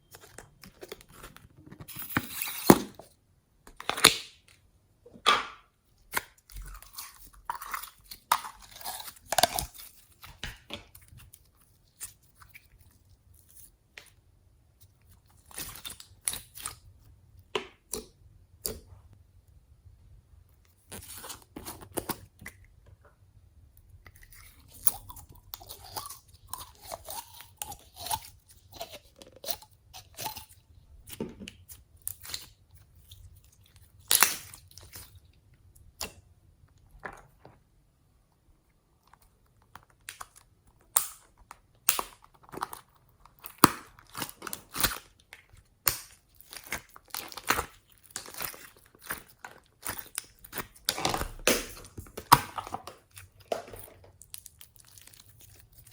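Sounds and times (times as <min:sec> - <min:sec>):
slime crunching and crackling: 0:06.0 - 0:13.8, 0:14.8 - 0:17.0, 0:24.0 - 0:36.2, 0:39.0 - 0:55.9
wet slime squelching: 0:38.8 - 0:55.9.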